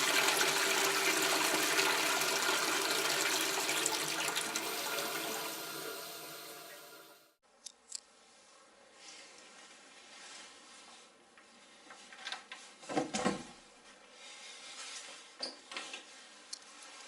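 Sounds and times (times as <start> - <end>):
rustling and handling noises: 7.7 - 13.1, 13.7 - 17.0.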